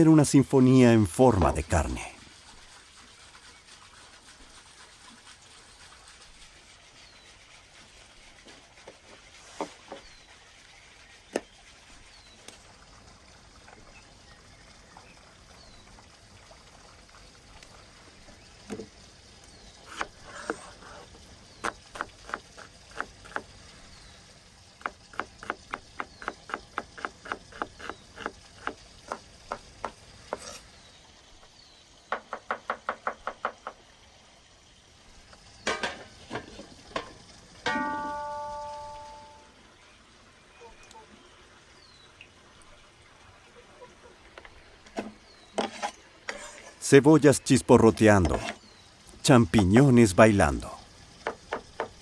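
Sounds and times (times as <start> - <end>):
faint high chirps: 37.7 - 39.5.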